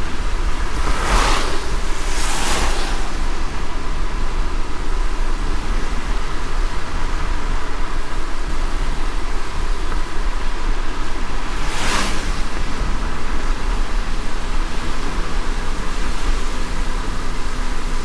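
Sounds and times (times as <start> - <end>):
brief whoosh: 0.0 - 4.4, 11.4 - 13.6
rain and wet tyres hiss: 0.0 - 18.0
road rumble: 0.0 - 18.0.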